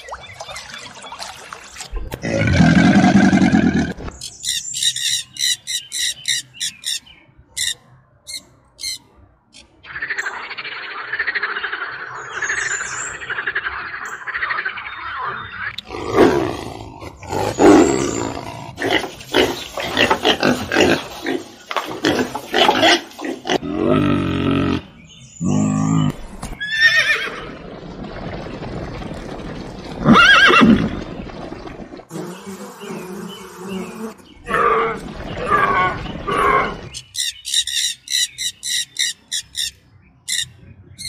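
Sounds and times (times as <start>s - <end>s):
pigs grunting and squealing: 2.1s - 4.0s, 15.8s - 26.2s, 34.4s - 37.0s.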